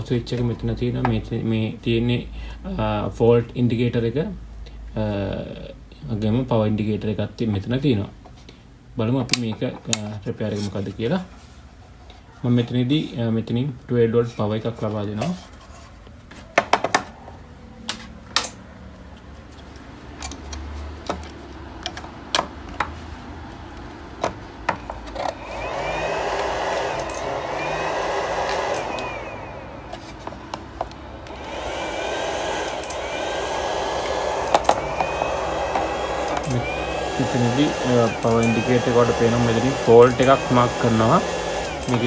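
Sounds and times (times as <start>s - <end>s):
cooling fan whirring: 17.1s - 42.0s.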